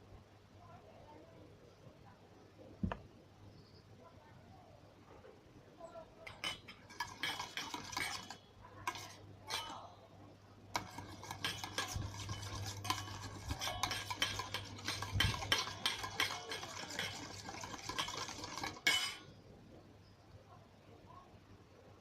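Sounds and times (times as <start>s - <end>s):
utensil stirring slime in container: 6.2s - 9.9s, 10.7s - 19.2s.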